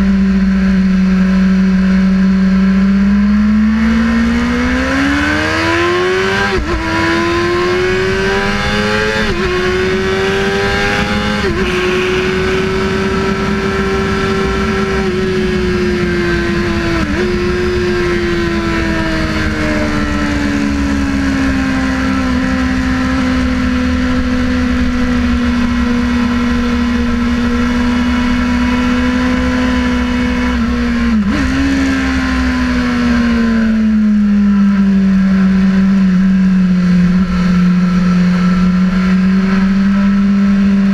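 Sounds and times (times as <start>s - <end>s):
motorcycle engine revving: 0.0s - 40.9s
wind rush: 6.4s - 28.6s.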